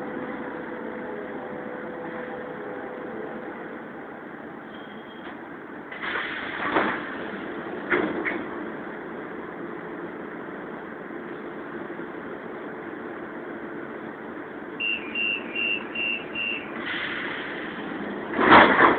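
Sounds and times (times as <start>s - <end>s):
train humming at platform: 0.0s - 18.9s
short high door warning beeps: 4.7s - 5.3s, 14.8s - 16.8s.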